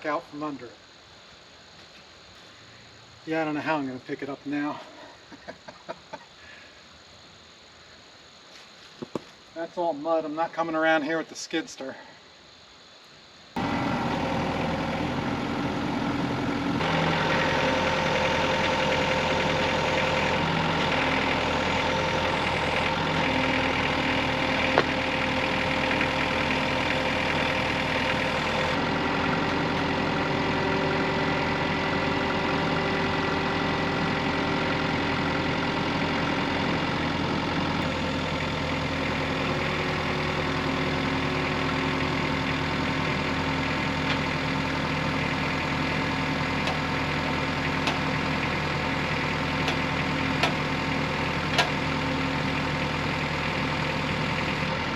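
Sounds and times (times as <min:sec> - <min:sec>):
engine running: 0:13.6 - 0:54.9.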